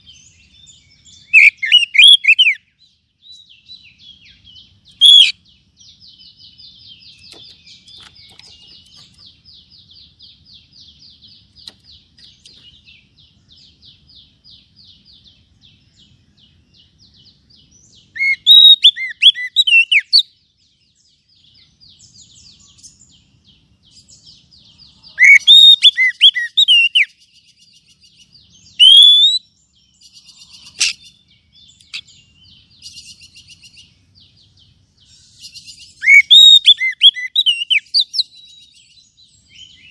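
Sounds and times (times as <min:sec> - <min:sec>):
bird whistled notes: 0:18.2 - 0:20.2, 0:25.2 - 0:27.1, 0:28.7 - 0:29.5, 0:35.6 - 0:38.3.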